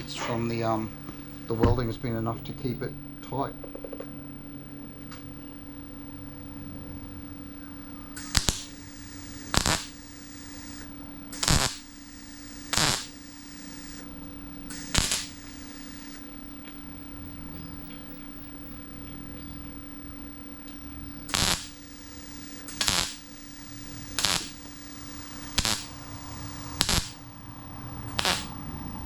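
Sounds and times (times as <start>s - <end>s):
steady low hum: 0.0s - 29.0s
welder crackling bursts: 8.2s - 14.1s, 14.7s - 16.2s, 21.3s - 29.0s.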